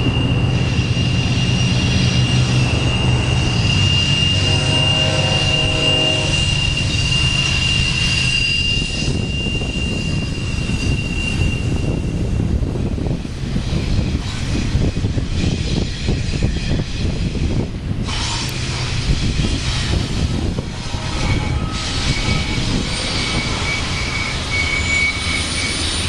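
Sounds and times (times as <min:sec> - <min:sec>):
high steady squeal: 0:00.0 - 0:12.9, 0:13.6 - 0:26.0
freight train wheels rumbling: 0:00.0 - 0:26.0.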